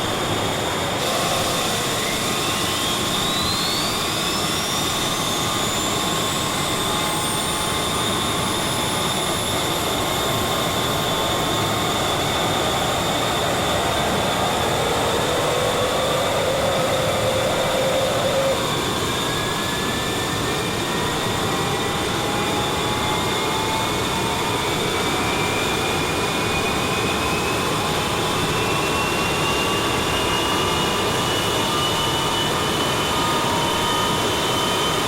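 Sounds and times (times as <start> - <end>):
loud rushing engine: 0.0 - 30.8
high whine climbing in pitch: 0.0 - 35.0.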